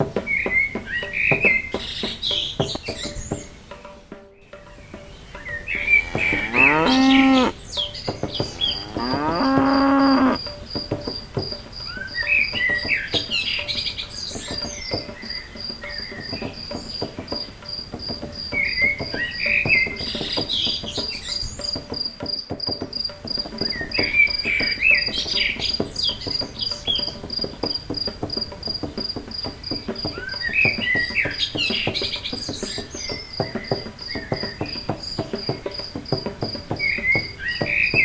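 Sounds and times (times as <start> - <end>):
birds chirping: 0.0 - 38.0
cow mooing: 5.8 - 7.6, 8.4 - 10.4
insect trilling: 5.8 - 10.5.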